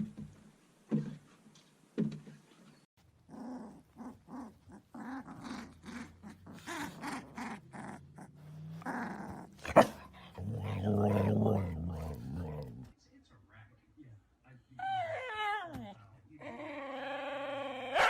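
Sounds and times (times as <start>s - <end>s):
dog barking: 9.6s - 10.1s.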